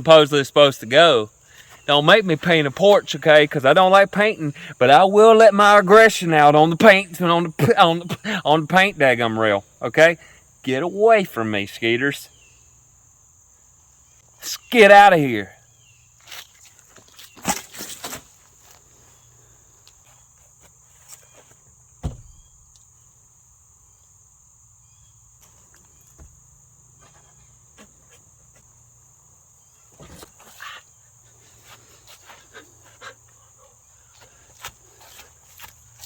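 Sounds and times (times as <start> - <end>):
insects chirring: 0.0 - 36.0
sharp knocks: 22.0 - 22.6.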